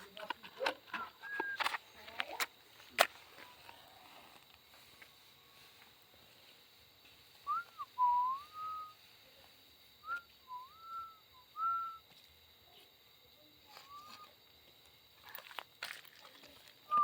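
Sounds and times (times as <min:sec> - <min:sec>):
person whistling a tune: 0:01.0 - 0:01.7, 0:07.4 - 0:09.0, 0:10.0 - 0:12.0.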